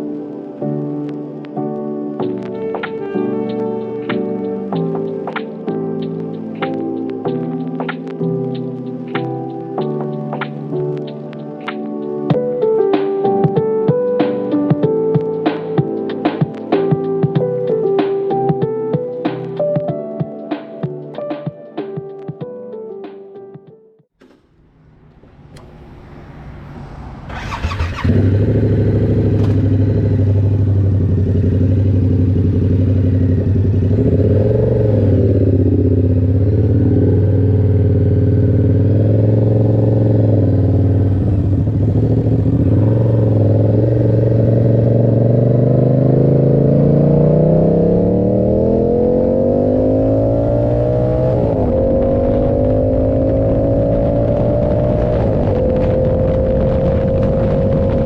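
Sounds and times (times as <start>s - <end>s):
motorcycle engine starting and idling: 24.2s - 48.9s.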